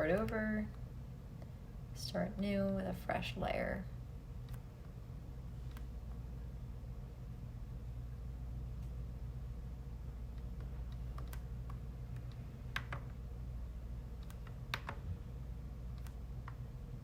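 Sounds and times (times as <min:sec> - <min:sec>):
low hum: 0:00.0 - 0:17.0
keyboard keystrokes: 0:10.4 - 0:13.2, 0:14.2 - 0:15.0, 0:15.9 - 0:16.6.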